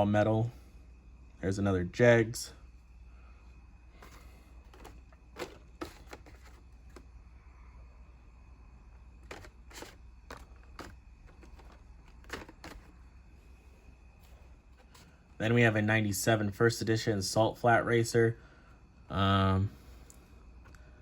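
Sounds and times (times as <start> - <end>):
low steady hum: 0.0 - 21.0
plastic packs clicking and tapping: 4.7 - 7.1, 9.2 - 13.0.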